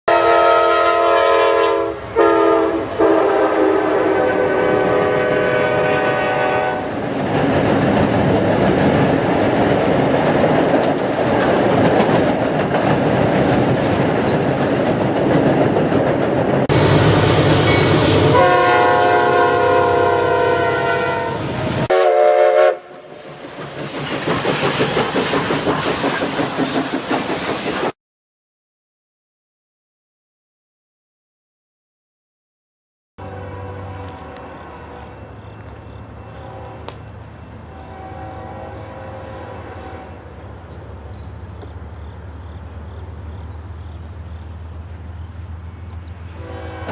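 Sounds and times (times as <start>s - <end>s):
locomotive air horn blasts: 0.1s - 7.0s, 16.7s - 23.1s, 33.2s - 35.4s, 36.2s - 37.1s, 37.7s - 40.2s, 46.4s - 46.9s
train wheels rumbling and clacking: 3.1s - 19.3s, 22.9s - 28.0s, 40.2s - 46.9s.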